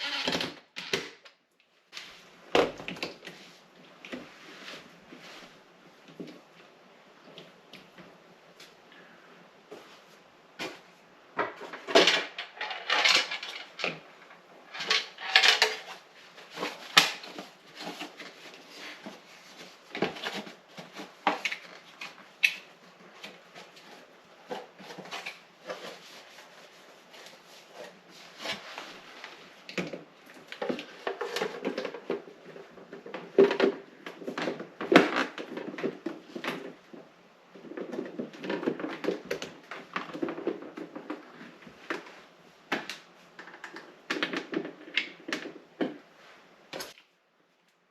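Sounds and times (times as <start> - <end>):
plastic and metal parts clattering: 11.4 - 22.6, 29.6 - 42.2.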